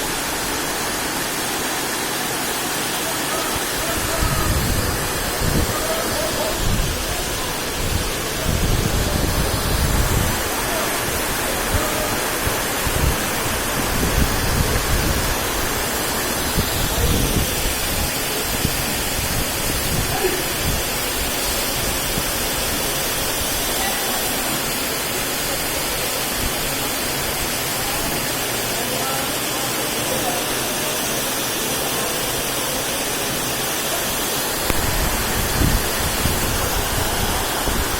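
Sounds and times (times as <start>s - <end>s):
low rumbling surges: 0.0s - 21.0s, 34.5s - 37.9s
heavy rain pouring: 0.0s - 37.9s.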